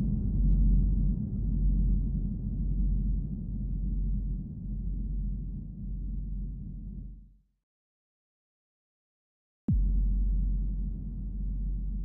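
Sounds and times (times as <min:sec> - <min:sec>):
steady low rumble: 0:00.0 - 0:07.0, 0:09.7 - 0:12.0.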